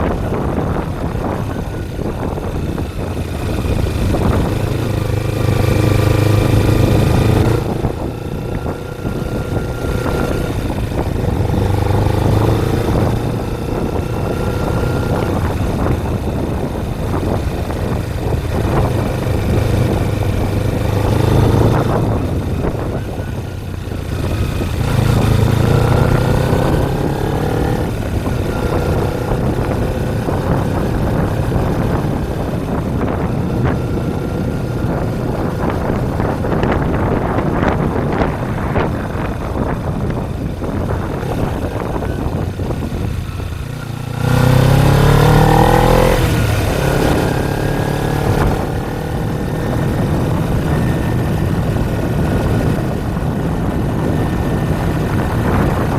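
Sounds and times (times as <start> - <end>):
motorcycle engine revving: 0.0 - 55.9
wind rushing over microphone: 0.0 - 55.9.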